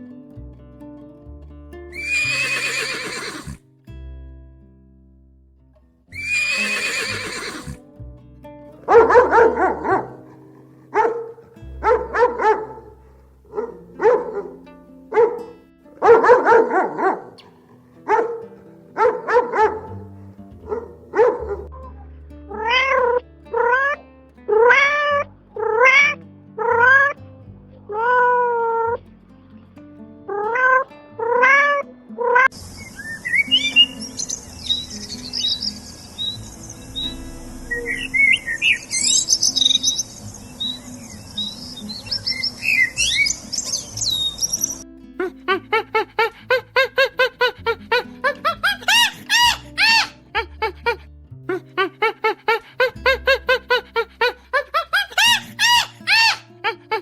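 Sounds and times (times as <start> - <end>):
cat meowing: 2.0 - 3.6, 6.2 - 7.8
small birds chirping: 32.6 - 44.8.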